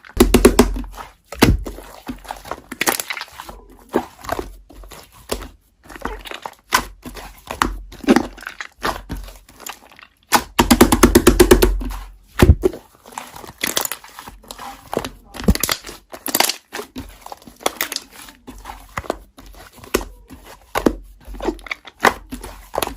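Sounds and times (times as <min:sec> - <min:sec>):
slime squished by hand: 0:00.0 - 0:22.9
crinkly crackles and clicking pops: 0:13.1 - 0:18.1.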